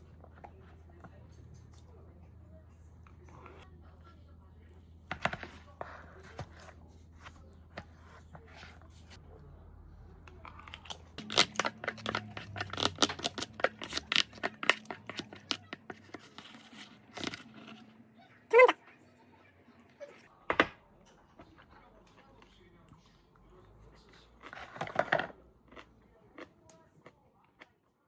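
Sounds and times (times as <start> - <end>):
crinkling and tearing: 10.5 - 17.9.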